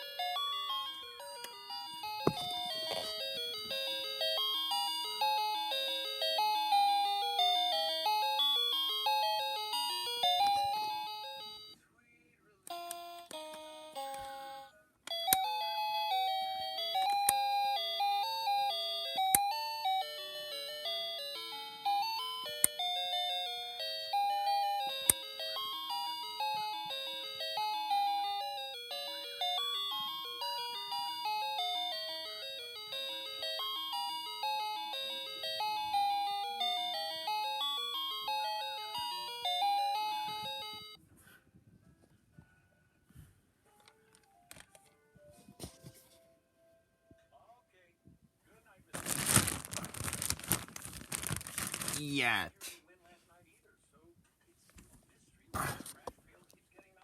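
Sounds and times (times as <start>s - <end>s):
toy music chip chime tune: 0.0s - 11.8s, 12.7s - 41.0s.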